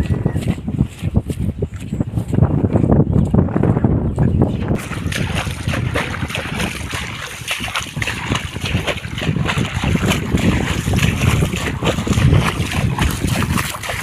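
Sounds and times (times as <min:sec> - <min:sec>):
wind buffeting microphone: 0:00.0 - 0:14.0
water splashing: 0:04.8 - 0:14.0.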